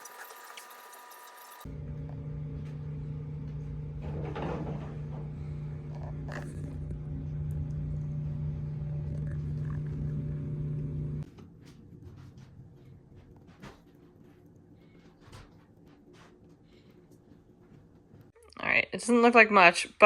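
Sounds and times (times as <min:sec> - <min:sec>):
low mechanical hum: 0:00.0 - 0:18.4.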